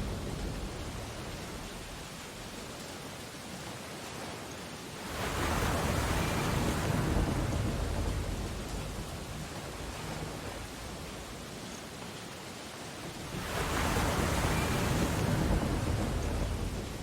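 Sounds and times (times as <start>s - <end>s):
steady hiss of the sea: 0.0s - 17.0s
ocean wave breaking: 5.0s - 11.4s, 13.0s - 17.0s.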